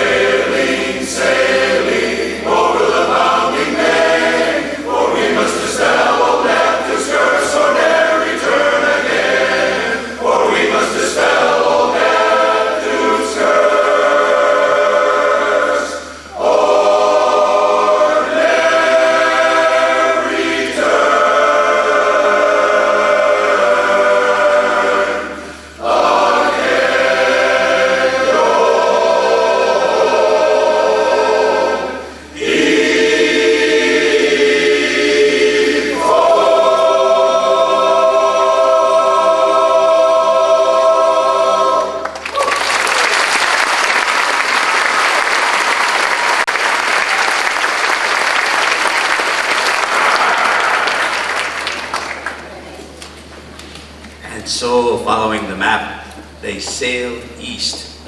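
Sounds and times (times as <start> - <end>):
chorus singing in close harmony: 0.0 - 42.3, 43.8 - 52.0
audience applauding: 42.0 - 53.8.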